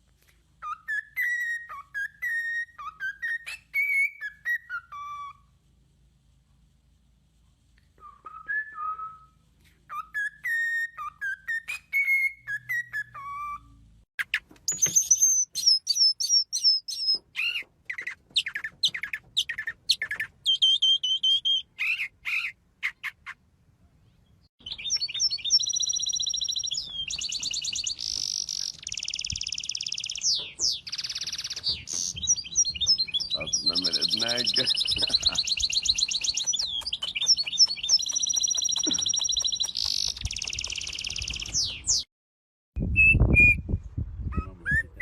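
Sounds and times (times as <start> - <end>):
bird trilling song: 0.6 - 5.4, 9.9 - 23.4, 24.0 - 42.1
bird chirping sharply: 10.4 - 23.4, 24.2 - 42.1.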